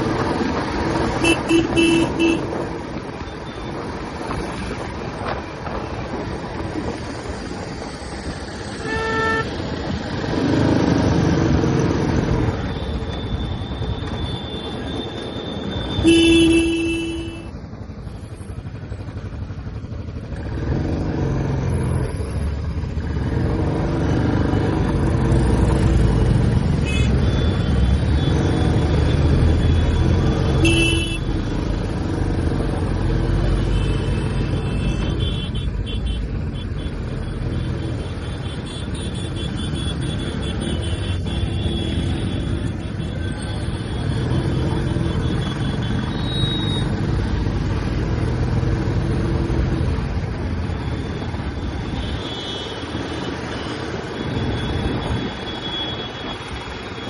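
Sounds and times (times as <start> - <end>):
vehicle horns honking: 1.2 - 2.6, 8.8 - 9.6, 14.2 - 17.5, 26.8 - 27.8, 29.7 - 31.3, 33.6 - 46.9.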